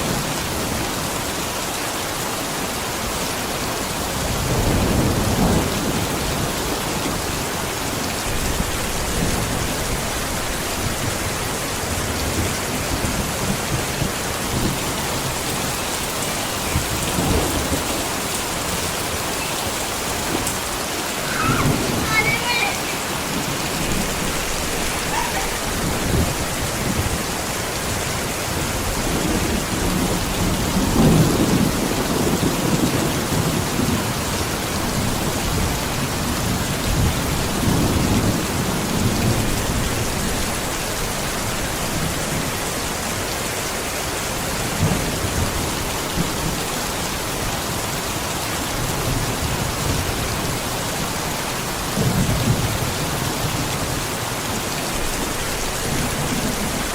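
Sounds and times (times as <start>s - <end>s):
heavy rain pattering: 0.0s - 56.9s
low thunder rumbles: 4.2s - 42.5s.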